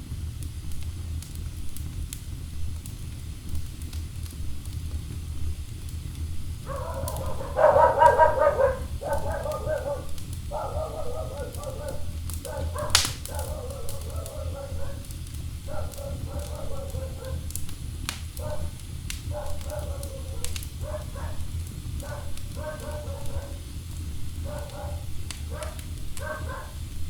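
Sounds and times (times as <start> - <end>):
wood fire crackling: 0.0 - 27.0
loud pop: 12.9 - 13.3.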